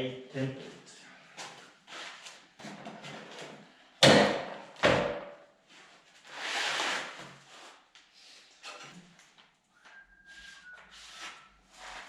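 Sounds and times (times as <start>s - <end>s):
sharp knocks: 4.0s - 5.3s.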